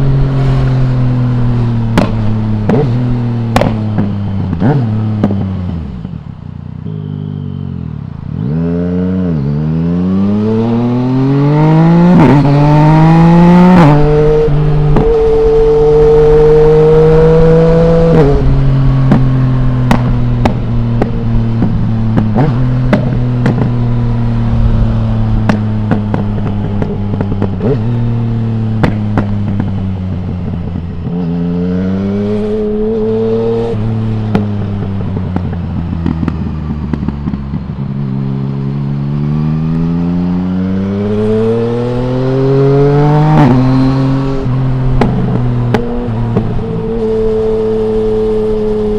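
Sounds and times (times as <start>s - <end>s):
motorcycle engine accelerating: 0.0s - 48.9s
exhaust crackles and pops: 1.9s - 2.9s, 3.5s - 5.4s, 19.0s - 23.8s, 28.7s - 30.6s, 34.3s - 37.8s.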